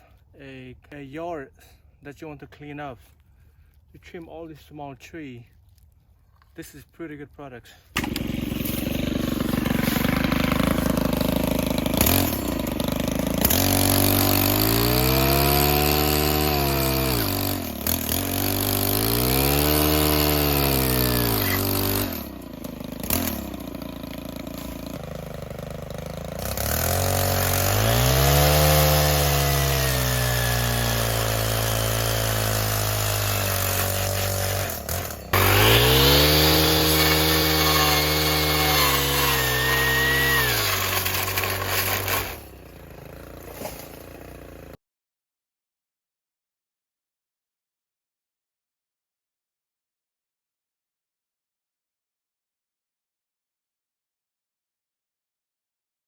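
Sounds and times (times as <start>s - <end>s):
blade cutting through brush: 7.9s - 44.8s
brush cutter engine revving: 7.9s - 44.8s.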